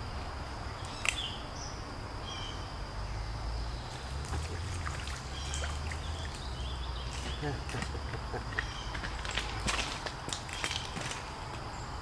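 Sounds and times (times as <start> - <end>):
high insect drone: 0.0 - 12.0
sharp click: 0.9 - 1.3
bird chirps: 8.4 - 9.0.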